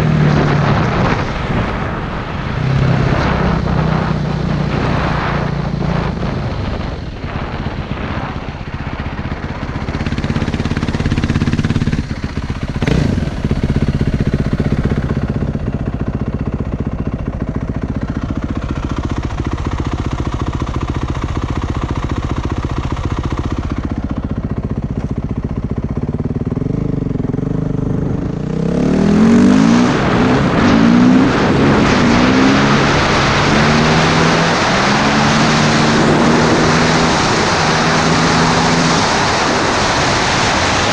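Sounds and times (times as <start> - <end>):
motorcycle engine revving: 0.0 - 40.9
wind rushing over microphone: 0.0 - 40.9.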